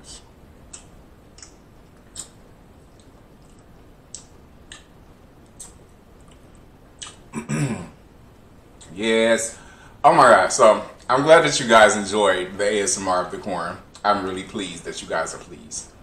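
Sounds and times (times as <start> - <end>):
chewing and lip smacks: 0.7 - 7.3.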